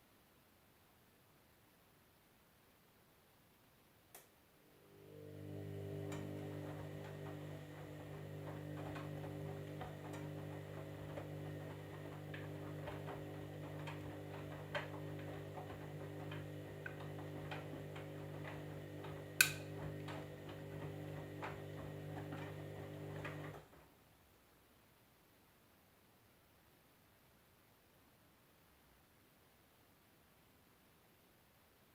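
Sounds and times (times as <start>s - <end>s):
washing machine humming: 4.7s - 23.8s.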